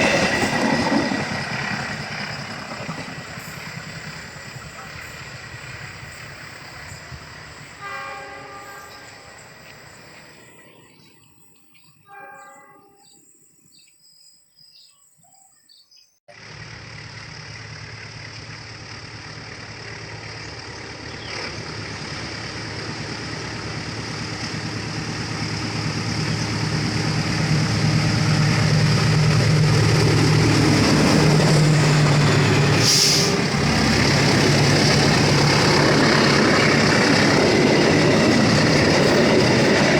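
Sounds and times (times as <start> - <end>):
train wheel noise: 0.0 - 11.2, 18.0 - 39.9
diesel train engine drone: 0.0 - 12.8, 16.3 - 39.9
train horn blasts: 7.7 - 9.5, 12.0 - 13.2.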